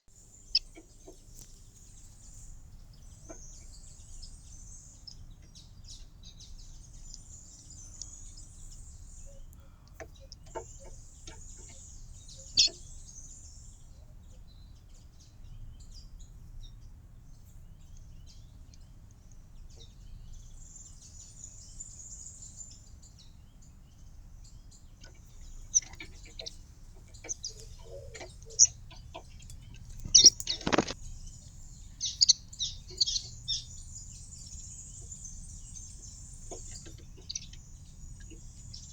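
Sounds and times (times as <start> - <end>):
small songbirds chirping: 0.0 - 38.9
low background rumble: 15.2 - 38.9.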